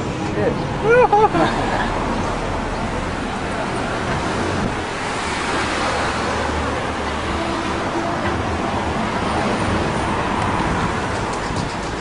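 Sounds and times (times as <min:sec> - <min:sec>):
low traffic rumble: 0:00.0 - 0:12.0
wind on microphone: 0:03.8 - 0:12.0.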